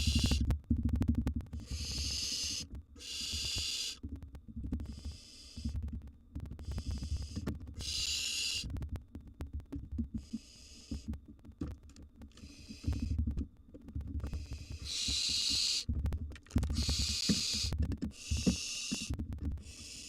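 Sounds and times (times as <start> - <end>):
owl nestlings hissing calls: 0.0 - 0.4, 1.6 - 4.0, 6.6 - 8.7, 12.4 - 13.1, 14.7 - 15.9, 16.7 - 20.0
knocks and rustling in nest box: 16.6 - 19.1.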